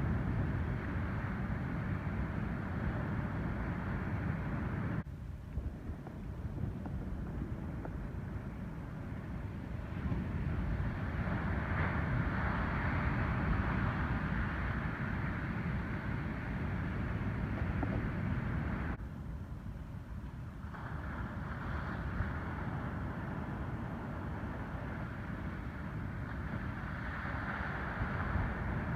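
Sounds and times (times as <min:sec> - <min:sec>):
wind rumbling on microphone: 0:00.0 - 0:28.9
ocean surf breaking: 0:09.7 - 0:19.0, 0:20.7 - 0:28.9.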